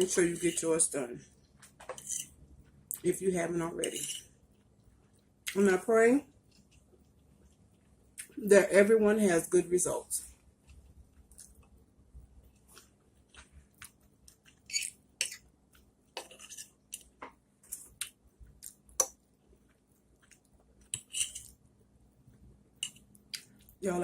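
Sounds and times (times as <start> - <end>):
person chewing: 10.6 - 11.8, 12.4 - 15.9, 16.8 - 21.6.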